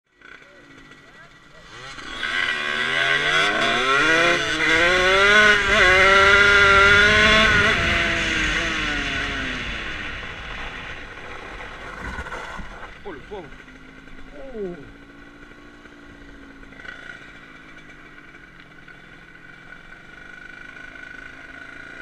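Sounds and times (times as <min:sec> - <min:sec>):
two-stroke motorcycle accelerating: 0:00.1 - 0:22.0
wind rumble on microphone: 0:05.6 - 0:11.1.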